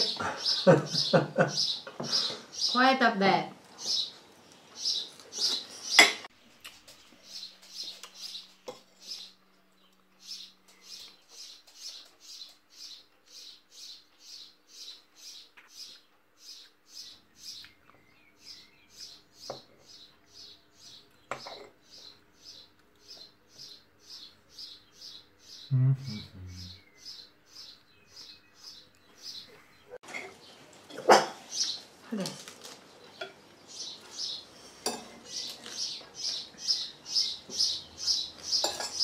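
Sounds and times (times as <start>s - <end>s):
bird chirping: 0.0s - 2.9s, 3.8s - 6.3s, 7.2s - 30.6s, 33.0s - 39.0s
cutlery clinking on a plate: 6.0s - 6.3s, 21.3s - 21.8s, 34.8s - 35.2s, 38.6s - 39.0s.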